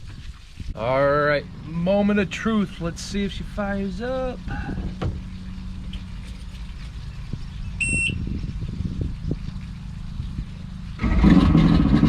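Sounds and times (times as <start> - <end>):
outboard motor starting and running: 0.0 - 12.0
short high beep: 7.8 - 8.2.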